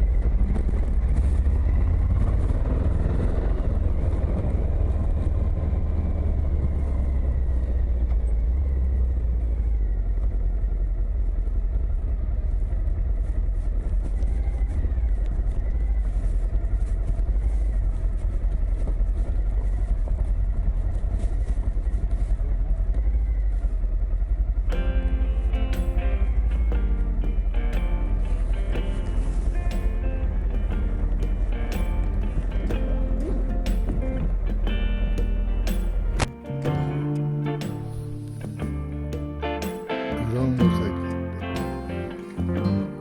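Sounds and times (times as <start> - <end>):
motorcycle engine rumbling: 24.4 - 40.2
music: 24.7 - 43.0.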